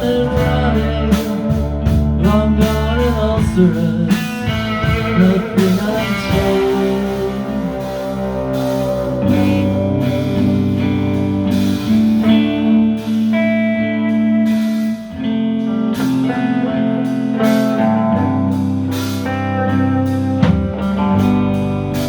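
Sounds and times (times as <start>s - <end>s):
guitar chords and melody: 0.0s - 22.0s
live band playing: 0.0s - 22.0s
steady beat of sharp strikes: 19.2s - 22.0s.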